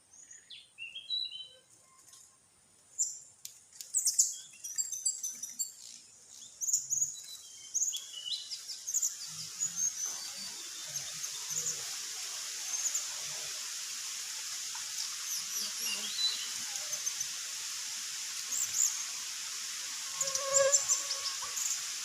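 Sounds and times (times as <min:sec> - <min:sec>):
steady high hiss: 0:00.0 - 0:22.0
small birds chirping: 0:00.1 - 0:01.7, 0:02.9 - 0:12.0.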